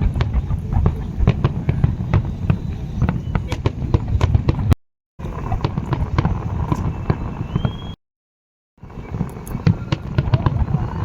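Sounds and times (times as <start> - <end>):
fireworks bangs and crackling: 0.0 - 8.0, 8.8 - 11.0
rising firework whistle: 1.2 - 4.3, 5.2 - 8.0.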